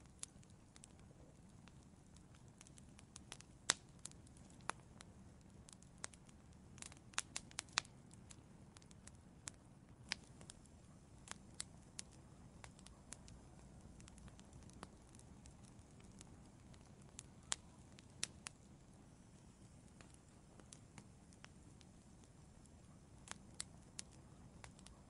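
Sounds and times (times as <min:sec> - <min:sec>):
faint low hiss: 0:00.0 - 0:25.0
wood fire crackling: 0:00.0 - 0:25.0.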